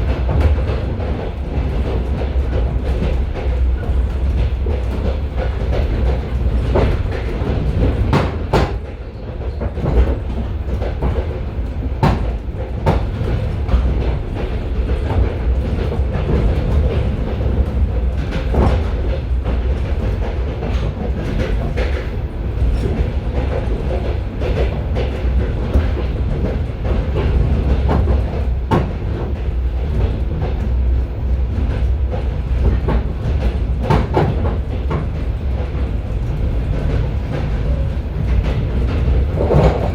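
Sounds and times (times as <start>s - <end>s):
train wheels rumbling on track: 0.0s - 39.9s
wheels clicking over rail joints: 31.4s - 39.9s.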